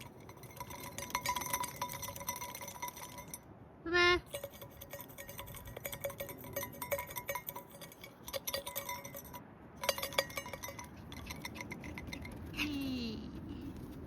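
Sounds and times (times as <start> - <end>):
small hard objects clinking: 0.0 - 3.4.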